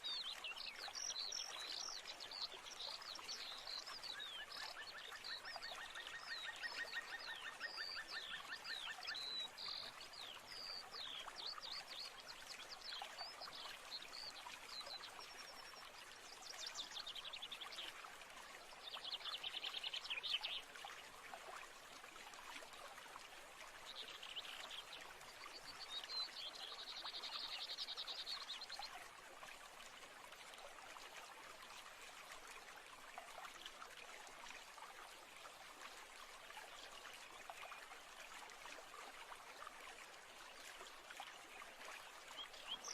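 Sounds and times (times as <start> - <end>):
stream running: 0.0 - 42.9.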